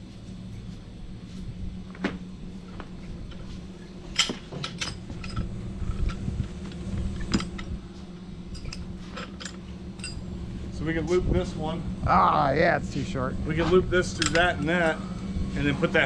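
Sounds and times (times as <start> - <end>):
low hum: 0.0 - 16.0
metal hardware clinking: 4.1 - 7.9, 8.5 - 10.3, 14.0 - 15.0.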